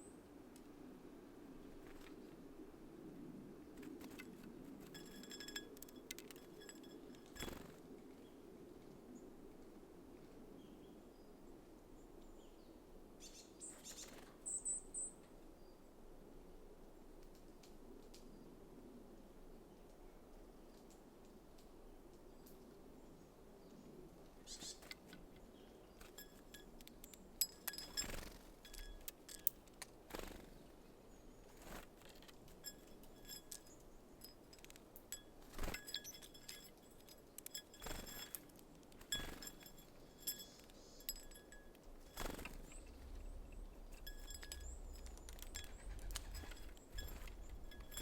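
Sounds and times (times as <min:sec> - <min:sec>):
small birds chipping: 0:03.8 - 0:09.4, 0:10.5 - 0:15.9, 0:22.2 - 0:48.0
beaks tapping on bird feeder: 0:04.8 - 0:07.7, 0:26.0 - 0:30.4, 0:31.6 - 0:48.0.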